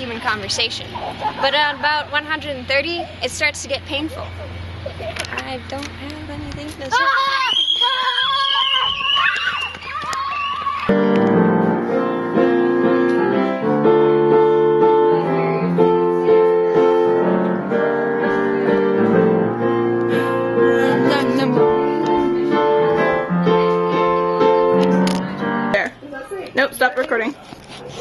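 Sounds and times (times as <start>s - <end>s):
piano music: 10.9s - 25.9s.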